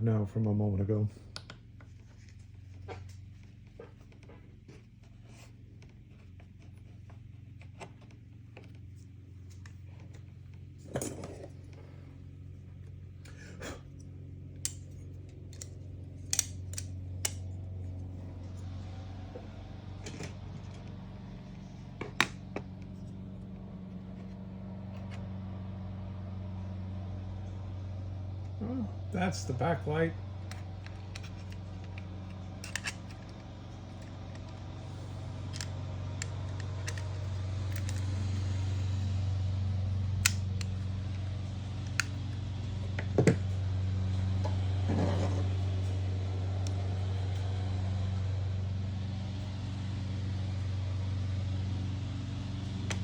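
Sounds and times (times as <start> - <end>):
steady low hum: 0.0 - 53.0
plastic and metal parts clicking: 30.5 - 33.4.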